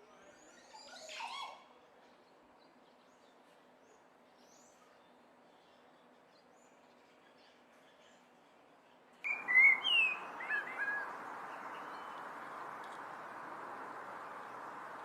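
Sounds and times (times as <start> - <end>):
bird chirping: 9.3 - 15.0.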